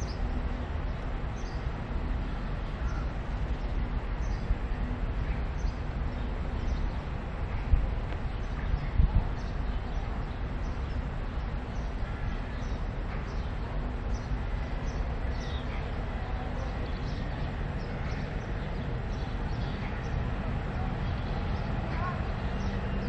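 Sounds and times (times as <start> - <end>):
birds chirping: 0.0 - 23.0
steady low rumble: 0.0 - 23.0.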